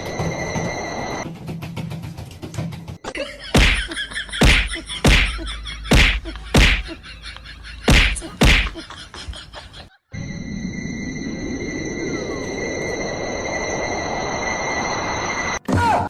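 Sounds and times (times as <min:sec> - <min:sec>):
sharp whacks or slaps: 0:03.6 - 0:03.8, 0:04.4 - 0:06.9, 0:07.9 - 0:08.8.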